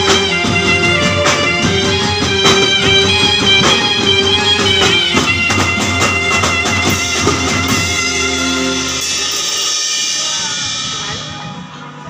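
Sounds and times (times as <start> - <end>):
keyboard melody: 0.0 - 11.8
drum kit and hand drums: 0.0 - 12.0.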